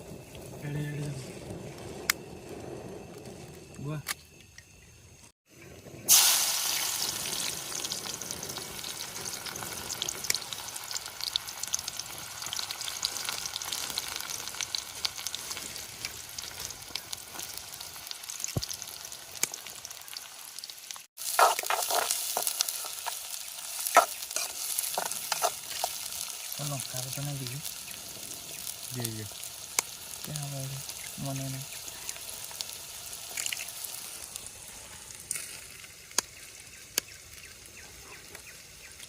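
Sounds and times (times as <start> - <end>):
food sizzling in hot oil: 0.0 - 39.0
stirring strokes in pan: 21.2 - 26.6.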